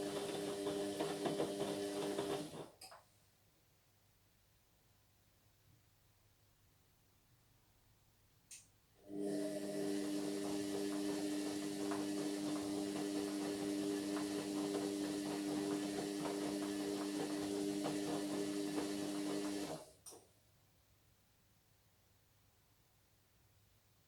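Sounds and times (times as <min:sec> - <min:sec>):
washing machine hum: 0:00.0 - 0:02.8, 0:09.0 - 0:20.0.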